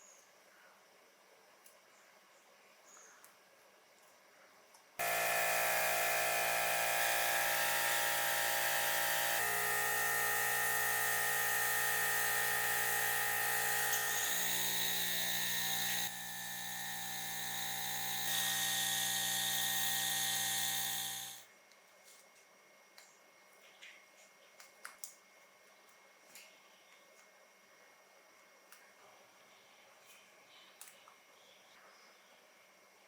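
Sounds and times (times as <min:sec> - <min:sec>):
small electric tool motor: 0:05.0 - 0:21.5.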